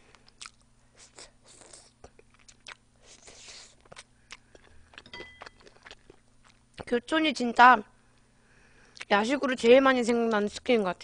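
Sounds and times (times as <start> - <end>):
chewing crispy chicken: 0.2 - 7.0.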